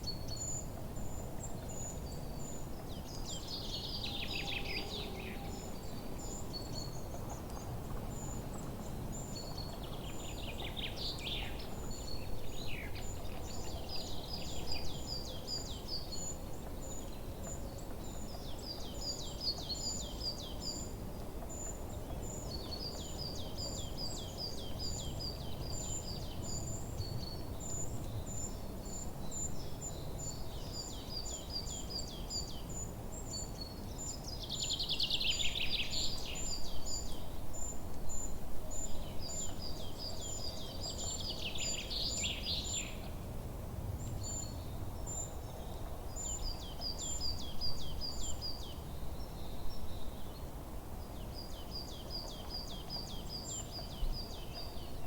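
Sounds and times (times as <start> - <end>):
songbirds singing: 0.0 - 43.2, 43.9 - 55.0
low background noise: 0.0 - 55.0.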